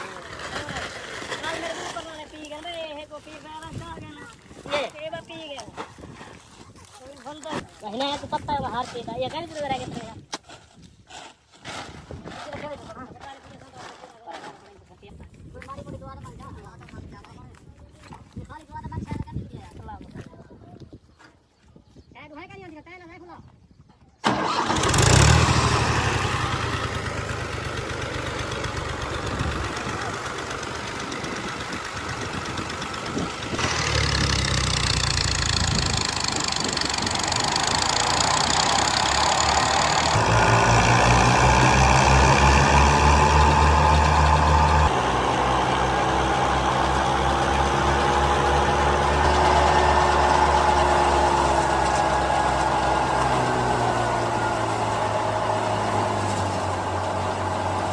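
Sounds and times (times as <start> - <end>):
combine harvester engine running: 24.2 - 57.9.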